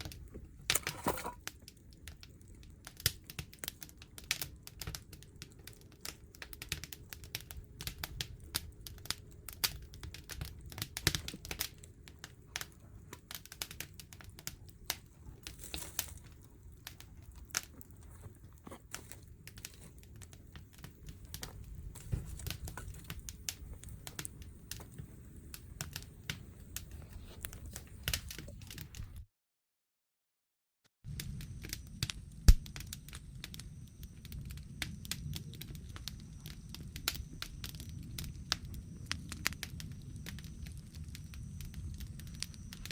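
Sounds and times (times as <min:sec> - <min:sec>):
wood fire crackling: 0:00.0 - 0:29.2, 0:31.1 - 0:42.9
hiss from fire: 0:31.1 - 0:42.9.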